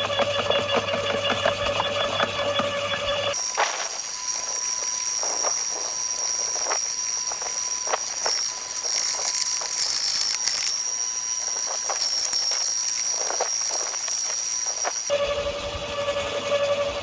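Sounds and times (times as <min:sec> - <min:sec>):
power tool whining: 0:00.0 - 0:16.0.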